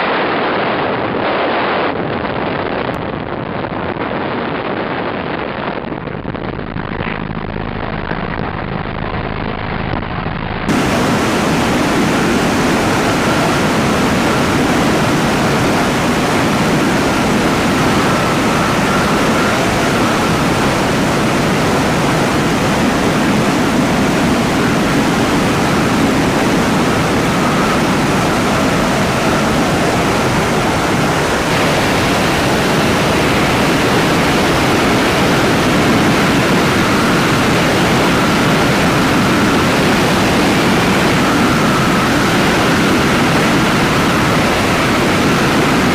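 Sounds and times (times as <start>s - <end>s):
faint high whine: 10.7s - 45.9s
helicopter engine and rotor: 10.7s - 45.9s.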